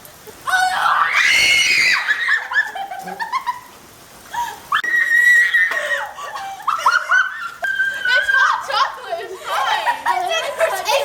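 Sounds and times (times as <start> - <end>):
girls shrieking and squealing: 0.5 - 2.9, 4.3 - 11.0
girls laughing: 1.9 - 4.7, 5.4 - 11.0.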